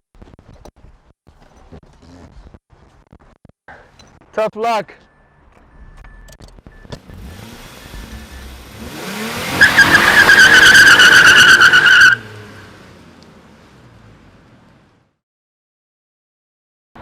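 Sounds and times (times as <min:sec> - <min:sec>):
car engine revving: 0:06.6 - 0:14.7
tyres squealing: 0:07.0 - 0:12.7.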